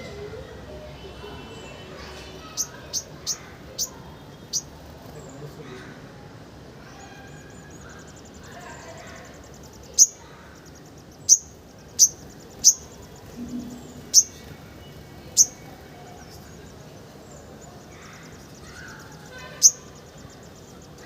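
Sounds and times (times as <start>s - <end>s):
bird chirps dropping in pitch: 12.0s - 15.6s.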